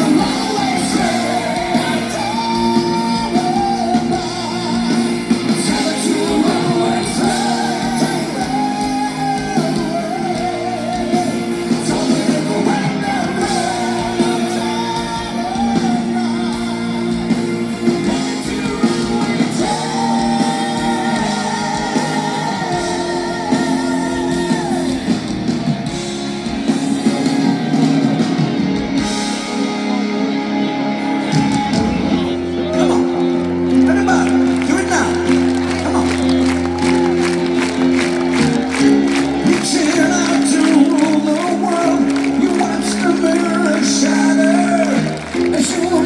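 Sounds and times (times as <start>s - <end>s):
drums: 0.0s - 46.0s
electric guitars: 0.0s - 46.0s
keyboards sustained chords: 0.0s - 46.0s.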